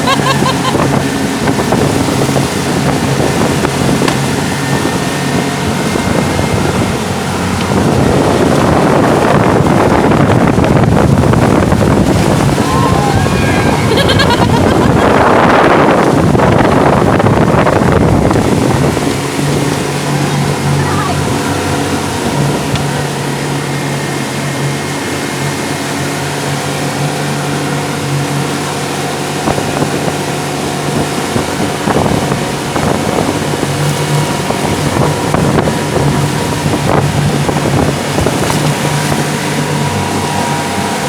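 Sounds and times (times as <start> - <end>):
motorboat engine running: 0.0 - 41.0
rush of wind and water: 0.0 - 41.0
splashes or knocks: 0.6 - 12.6.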